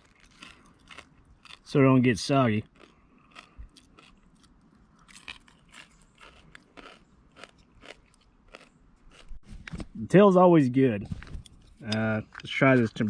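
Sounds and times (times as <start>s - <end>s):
person chewing crunchy fried food: 0.0s - 9.4s.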